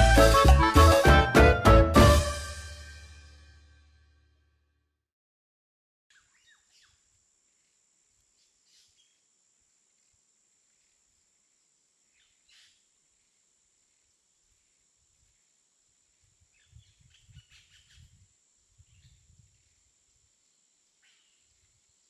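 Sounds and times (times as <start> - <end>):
faint bird chirps: 6.1 - 9.3, 12.0 - 15.5, 16.3 - 19.9, 20.5 - 22.0.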